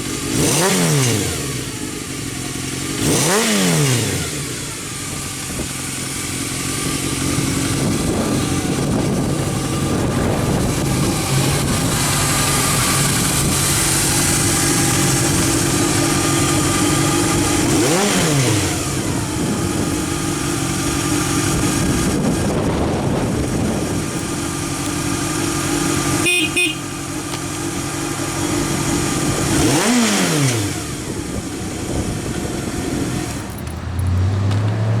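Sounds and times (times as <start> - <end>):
motorcycle engine idling: 0.0 - 34.5.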